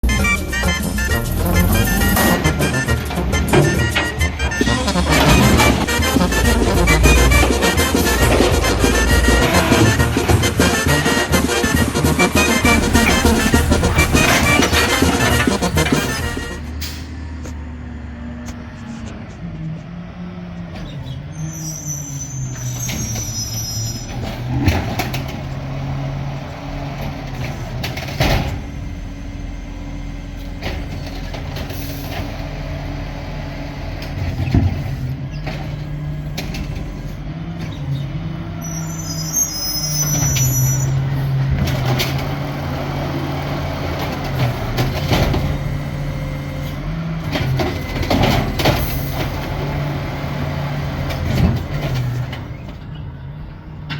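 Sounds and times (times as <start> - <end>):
loud bangs: 0.0 - 17.4
garbage truck diesel engine: 0.0 - 53.9.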